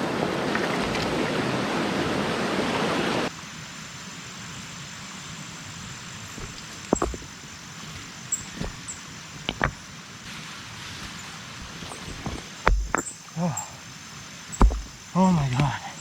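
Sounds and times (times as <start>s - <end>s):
high insect drone: 3.3s - 16.0s
sharp knocks: 6.4s - 7.3s, 8.6s - 8.8s, 9.4s - 9.8s, 12.1s - 13.1s, 14.6s - 15.0s.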